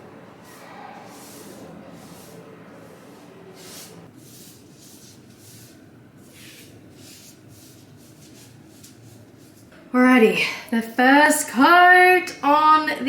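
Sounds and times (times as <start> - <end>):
short swishing strokes: 0.4 - 5.8.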